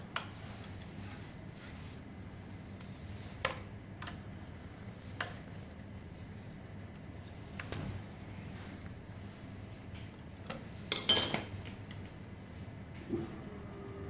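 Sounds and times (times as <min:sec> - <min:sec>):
steady low hum: 0:12.2 - 0:14.0.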